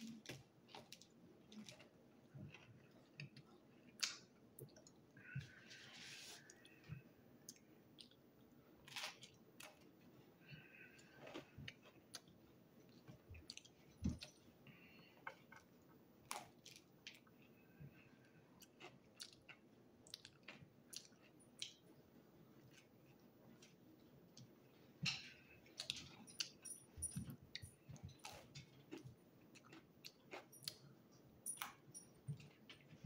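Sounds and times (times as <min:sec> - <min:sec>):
person chewing food: 0:00.0 - 0:33.0.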